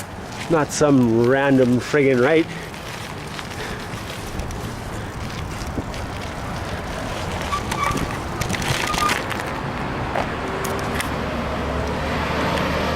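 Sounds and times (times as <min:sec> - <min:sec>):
clicks and rattles: 0:03.0 - 0:09.6
wind rushing over microphone: 0:04.0 - 0:12.5.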